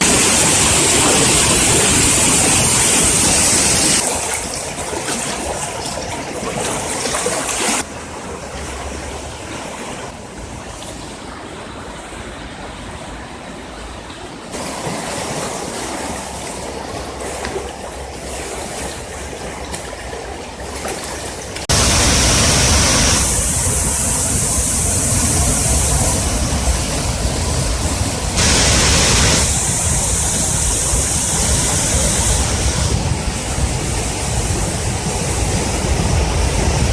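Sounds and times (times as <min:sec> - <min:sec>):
creek roaring: 0:14.5 - 0:36.9.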